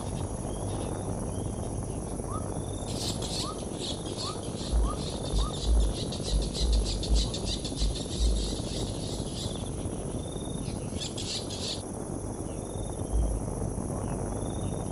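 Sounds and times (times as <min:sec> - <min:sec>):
pulsing insect chirps: 0:00.0 - 0:14.9
thin bird calls: 0:02.2 - 0:11.8.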